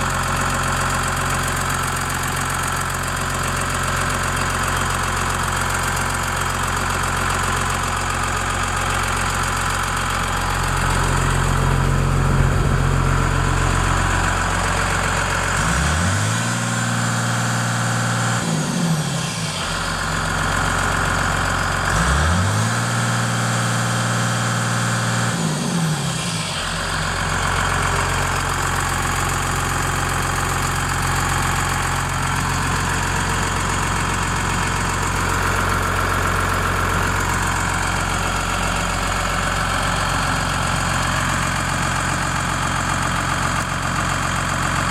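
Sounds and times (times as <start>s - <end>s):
diesel engine idling and revving: 0.0s - 44.9s.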